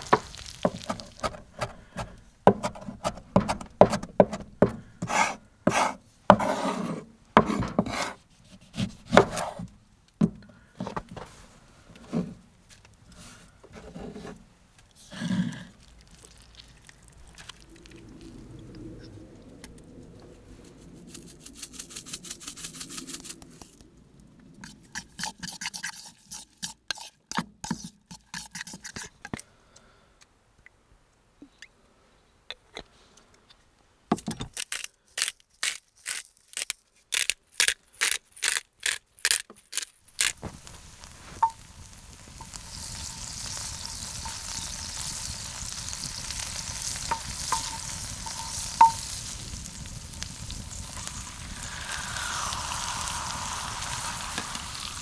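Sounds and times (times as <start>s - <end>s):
food sizzling in a hot pan: 0.0s - 1.2s, 40.4s - 55.0s.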